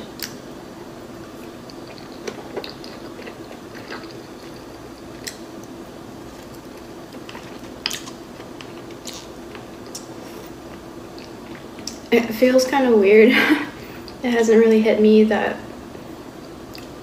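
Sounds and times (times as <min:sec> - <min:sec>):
chewing food: 0:01.3 - 0:12.1, 0:16.4 - 0:17.0.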